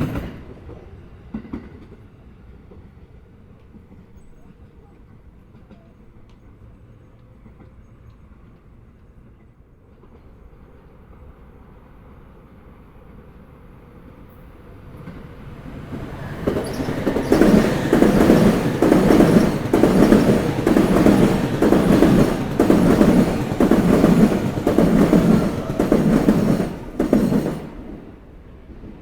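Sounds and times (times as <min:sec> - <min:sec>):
train wheels clattering over rail joints: 0:15.0 - 0:28.1.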